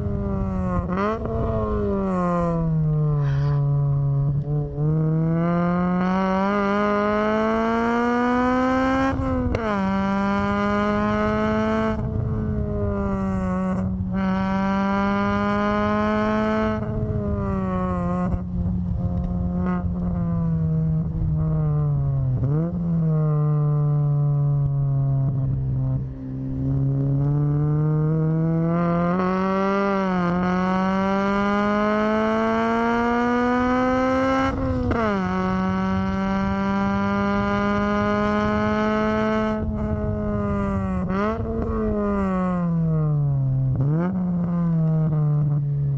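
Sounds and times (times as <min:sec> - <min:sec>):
car engine accelerating: 0:00.0 - 0:45.9.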